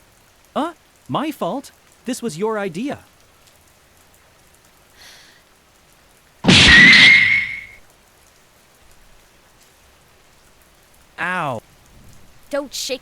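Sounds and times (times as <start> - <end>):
steady rain: 0.0 - 13.0
loud ringing crash: 6.5 - 7.8.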